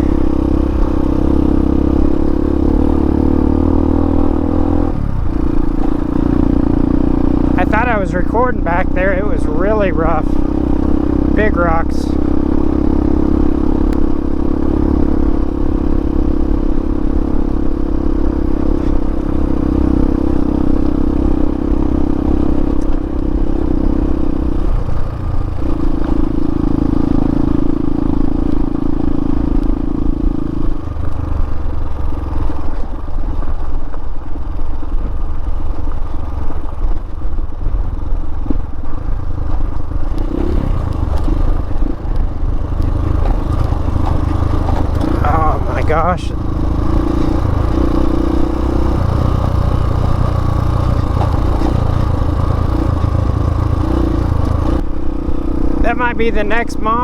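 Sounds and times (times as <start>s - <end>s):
motorcycle engine running: 0.0s - 57.0s
clatter and knocks: 40.8s - 45.2s.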